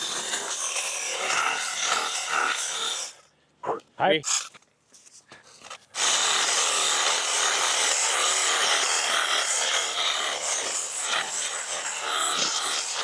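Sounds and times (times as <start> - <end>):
battery cutting tool cutting brush: 4.2 - 13.0.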